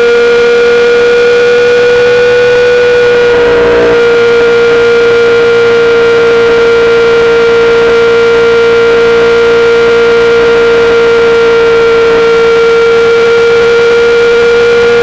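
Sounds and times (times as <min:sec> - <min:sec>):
motorcycle engine at steady revs: 0:00.0 - 0:15.0.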